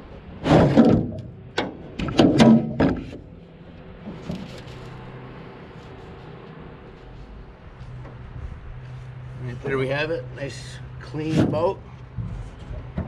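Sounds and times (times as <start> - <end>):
boat seat scraping and clanking: 4.0 - 5.1.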